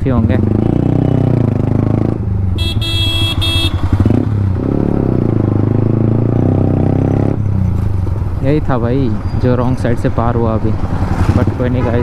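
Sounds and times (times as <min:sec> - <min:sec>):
motorcycle engine running: 0:00.0 - 0:09.4
vehicle horn beeps: 0:02.6 - 0:04.0, 0:11.7 - 0:12.0.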